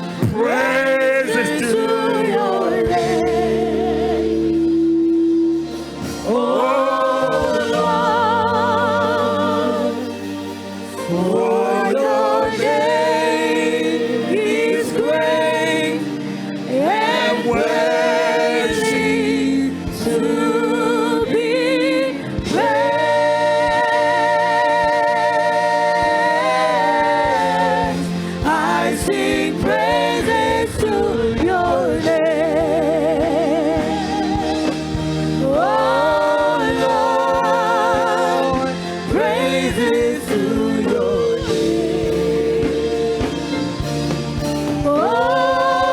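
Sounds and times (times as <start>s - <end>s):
gospel singing: 0.0s - 45.9s.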